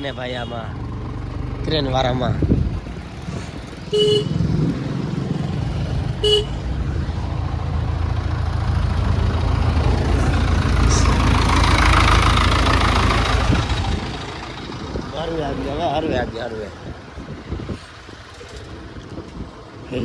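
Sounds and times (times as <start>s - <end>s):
vehicle engine rumbling: 0.0s - 20.0s
short horn beep: 3.9s - 4.4s.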